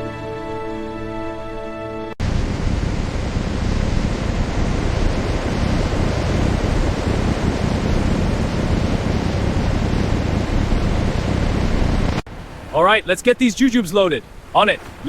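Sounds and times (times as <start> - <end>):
deep rumble: 2.2 - 12.3.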